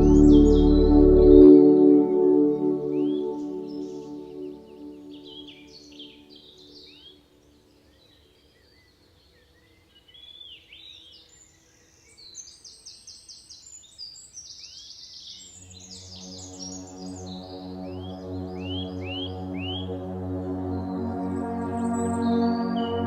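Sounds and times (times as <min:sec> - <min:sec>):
birds whistling rising notes: 0:00.0 - 0:06.0, 0:16.0 - 0:23.0
soft ambient music: 0:00.0 - 0:08.2, 0:15.4 - 0:23.0.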